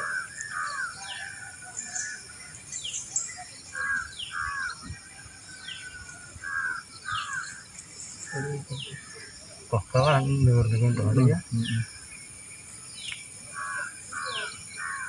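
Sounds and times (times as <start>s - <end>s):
crows cawing: 0.0s - 1.4s, 3.8s - 4.9s, 6.4s - 7.6s, 13.5s - 15.0s
high insect drone: 0.0s - 15.0s.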